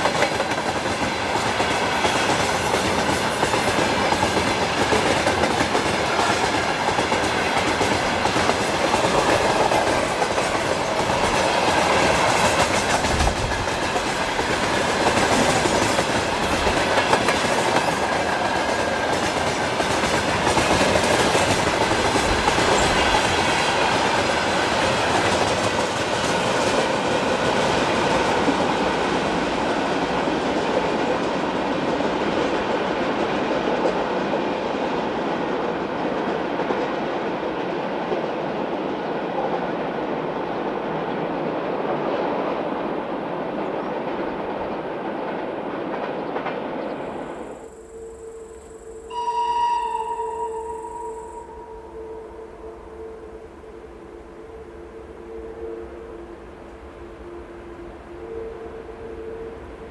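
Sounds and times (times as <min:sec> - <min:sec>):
train wheels clattering on rails: 0:00.0 - 0:47.6.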